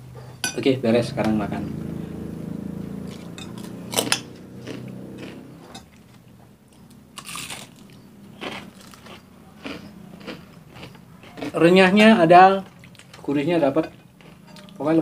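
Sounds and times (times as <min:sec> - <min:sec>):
crunchy food chewing: 0:03.0 - 0:13.3, 0:14.2 - 0:15.0.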